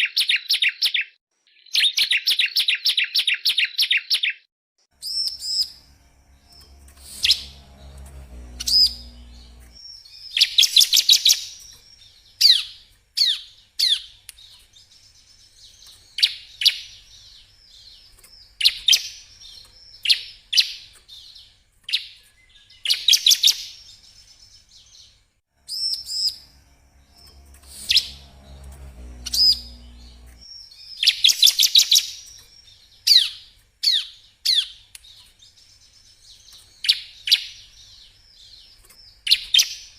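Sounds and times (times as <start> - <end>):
bird song with rapid high trills: 5.0 - 39.9.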